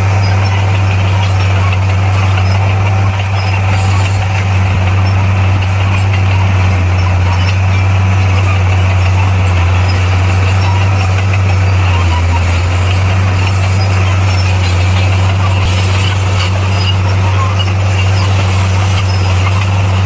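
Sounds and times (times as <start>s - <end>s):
diesel engine droning under load: 0.0s - 20.0s.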